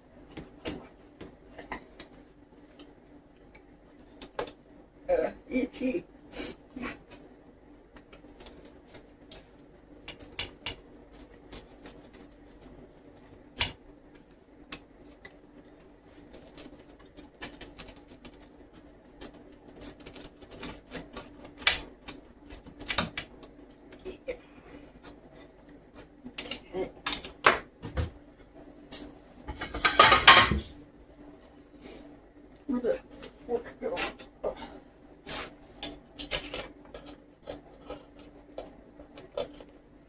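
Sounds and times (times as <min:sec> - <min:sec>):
faint steady hum: 0:00.0 - 0:40.0
kitchen utensils and dishes clicking: 0:29.5 - 0:30.6.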